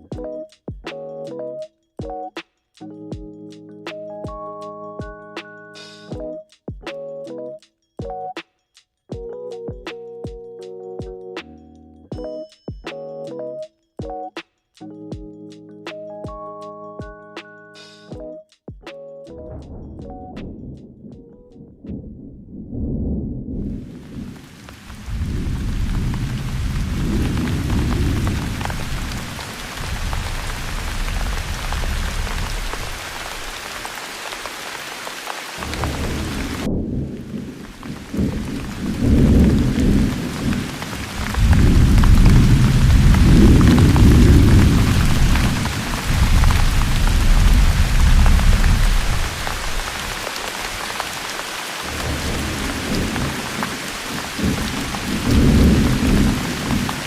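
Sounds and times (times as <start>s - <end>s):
thunder rolling: 19.4s - 33.6s, 35.6s - 51.2s, 51.8s - 57.0s
heavy rain hissing: 23.8s - 57.0s.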